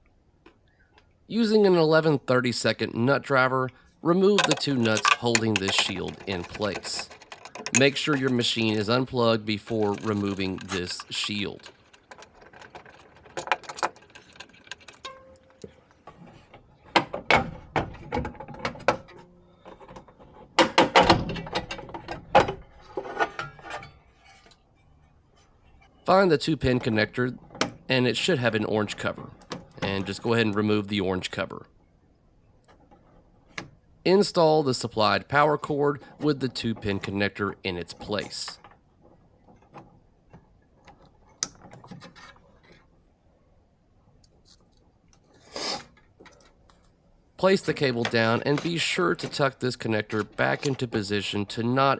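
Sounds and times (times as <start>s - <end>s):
tools and small parts clattering: 4.4s - 16.1s.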